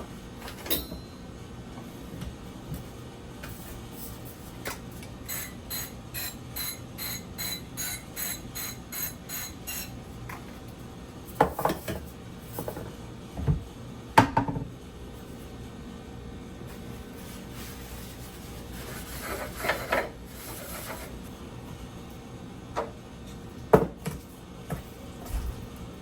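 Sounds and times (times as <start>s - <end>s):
knocks and clinks of dishes: 11.4s - 12.9s.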